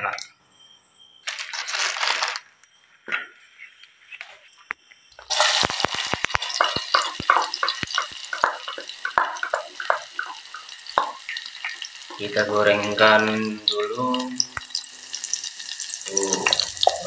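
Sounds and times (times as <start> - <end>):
vegetables sizzling in hot oil: 5.2 - 17.0.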